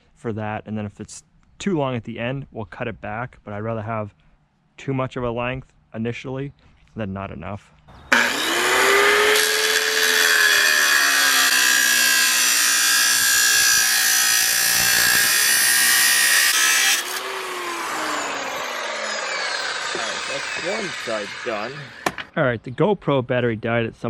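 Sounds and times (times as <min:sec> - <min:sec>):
angle grinder cutting steel pipe: 0:08.0 - 0:22.3.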